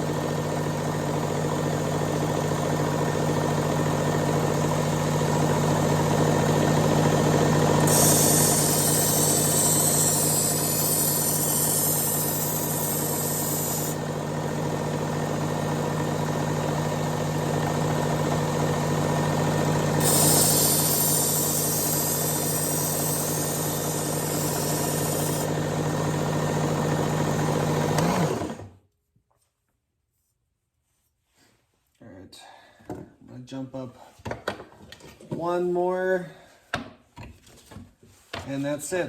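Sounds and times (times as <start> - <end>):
belt sharpener motor hum: 0.0 - 28.7
motor spinning down: 0.0 - 28.7
knife blade grinding on belt: 7.9 - 14.0, 20.0 - 25.5.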